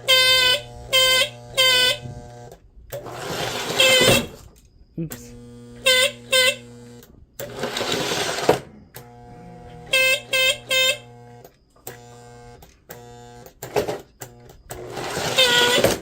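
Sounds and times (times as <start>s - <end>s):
toy train horn blasts: 0.0s - 2.5s, 3.5s - 4.4s, 5.5s - 7.0s, 9.0s - 11.4s, 15.0s - 16.0s
buzzing rattle: 0.0s - 16.0s
electrical hum: 0.0s - 16.0s.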